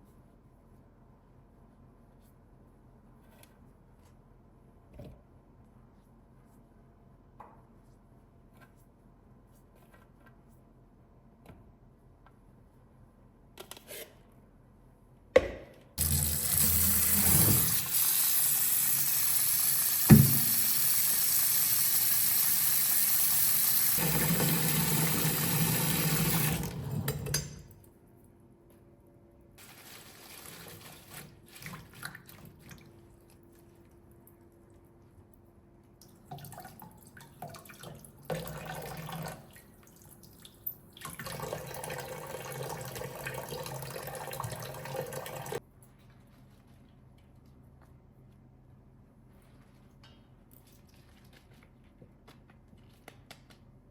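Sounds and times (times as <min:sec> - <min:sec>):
water running into sink: 0:16.0 - 0:27.4, 0:41.1 - 0:45.6.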